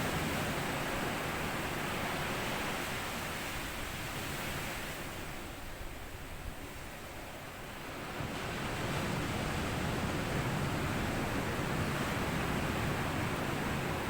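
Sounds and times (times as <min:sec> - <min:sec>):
sea waves washing on sand: 0:07.4 - 0:14.0.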